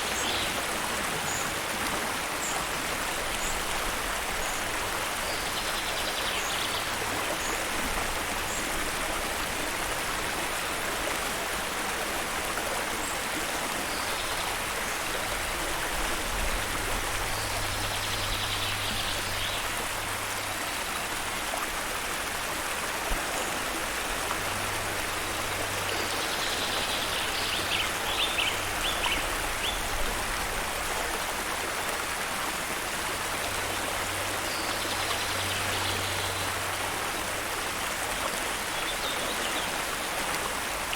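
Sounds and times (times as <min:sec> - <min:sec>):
stream water rushing: 0:00.0 - 0:40.9.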